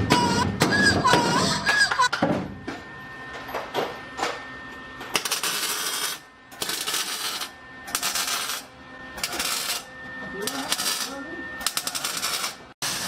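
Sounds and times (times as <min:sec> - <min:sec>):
welding arc crackling: 0:05.2 - 0:13.0.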